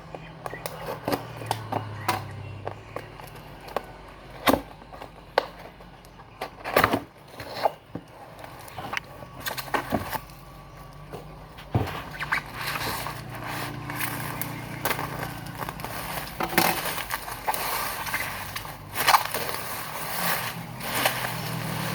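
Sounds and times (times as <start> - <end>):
packaging rustling: 7.0 - 21.9.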